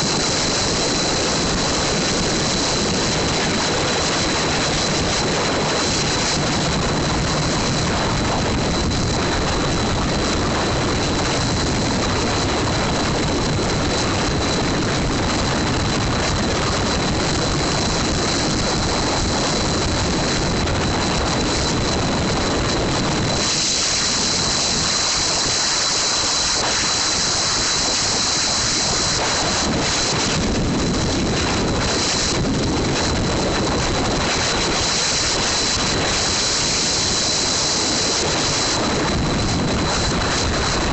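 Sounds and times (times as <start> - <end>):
thin high whine: 0.0 - 40.9
wind roar on microphone: 0.0 - 40.9.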